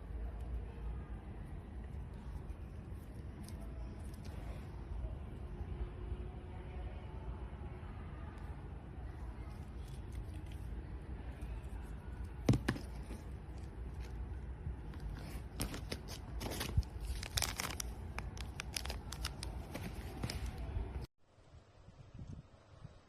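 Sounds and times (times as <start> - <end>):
steady low hum: 0.0 - 23.0
packaging tearing and crinkling: 15.4 - 20.5.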